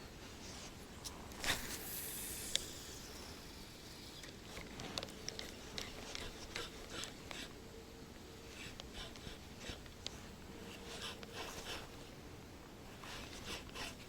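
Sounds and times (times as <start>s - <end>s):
line hissing off reel: 1.4s - 4.5s.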